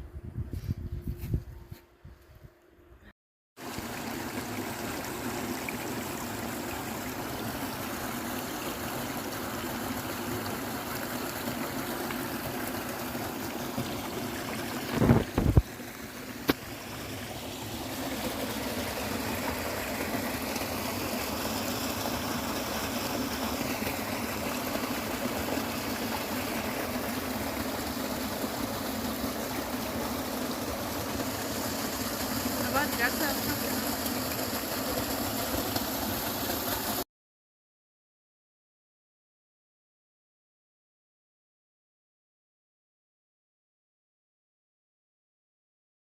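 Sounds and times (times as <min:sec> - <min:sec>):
stream running: 0:03.6 - 0:37.0.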